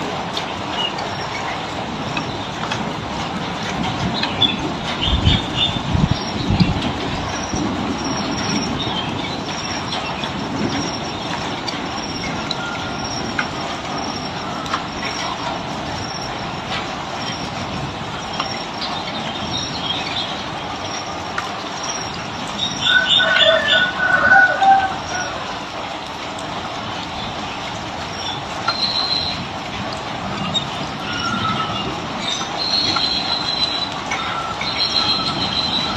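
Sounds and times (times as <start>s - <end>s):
falling water rushing: 0.0s - 35.9s.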